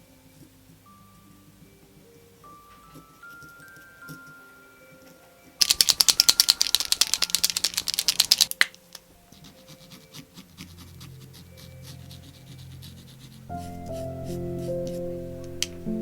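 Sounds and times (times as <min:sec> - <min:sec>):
paint marker ball rattling: 0:05.0 - 0:14.0.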